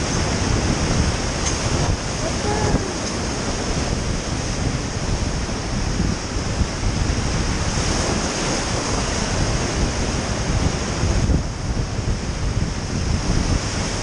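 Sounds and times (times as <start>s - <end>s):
whitewater rapids rushing: 0.0s - 6.4s
wind buffeting microphone: 0.0s - 14.0s.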